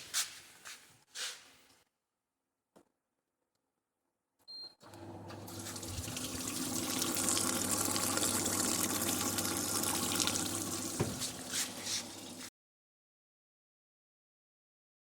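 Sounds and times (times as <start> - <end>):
dishwasher pump humming: 4.8 - 12.5
water spraying and splashing: 5.4 - 12.5.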